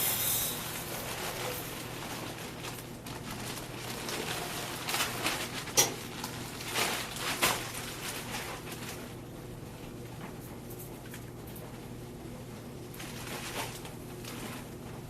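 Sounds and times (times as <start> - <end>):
grain mill handling rustles: 0.0 - 9.1.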